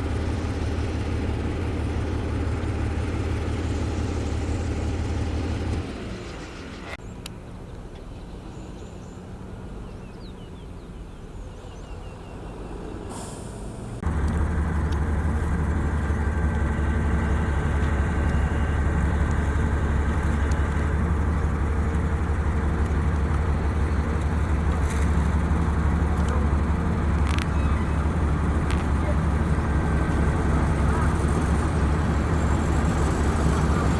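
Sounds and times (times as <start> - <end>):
diesel engine droning: 0.0 - 33.9
short hiss: 13.1 - 14.0.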